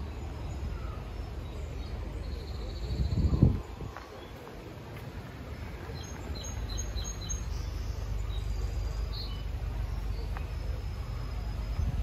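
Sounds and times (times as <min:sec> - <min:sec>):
low microphone rumble: 0:00.0 - 0:12.0
small bird chirping: 0:05.4 - 0:12.0.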